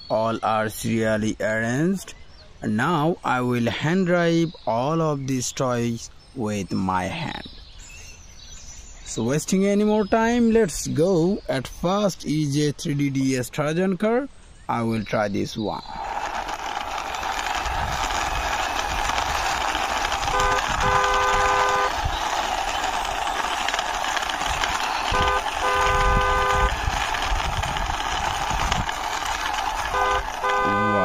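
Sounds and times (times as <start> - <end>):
steady rushing noise: 15.8 - 31.0
car horn honking: 20.3 - 21.9, 25.1 - 26.8, 29.9 - 31.0.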